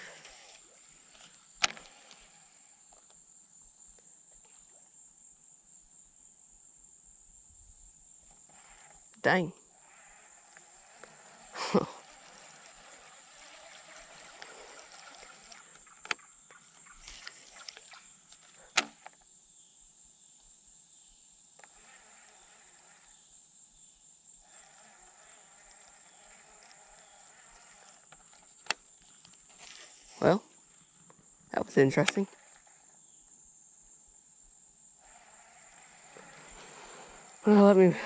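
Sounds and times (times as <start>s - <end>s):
high-pitched insect drone: 7.4s - 18.7s, 19.5s - 38.0s.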